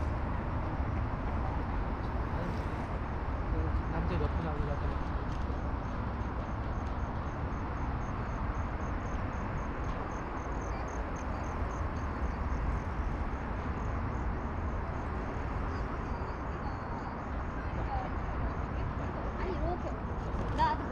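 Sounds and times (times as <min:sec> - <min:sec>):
insect chirping: 0:05.9 - 0:18.3.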